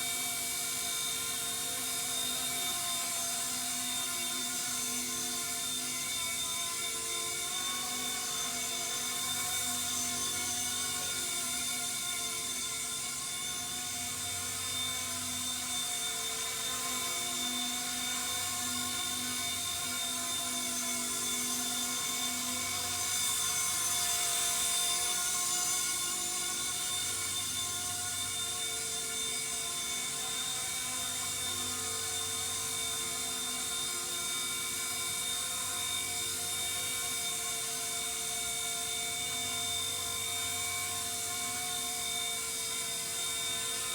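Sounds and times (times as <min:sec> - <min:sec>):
rc helicopter motor whine: 0:00.0 - 0:43.9.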